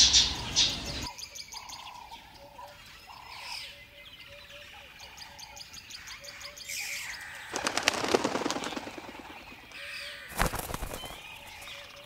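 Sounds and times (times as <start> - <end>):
songbird chirps and twittering: 0.0 - 12.0
rapid fluttering clicks: 7.5 - 11.7.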